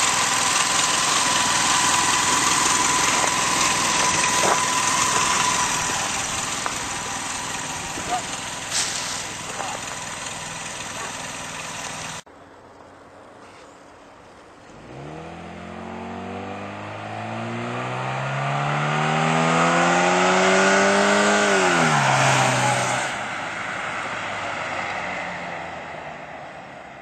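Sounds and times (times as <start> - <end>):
car accelerating past: 14.7 - 26.7.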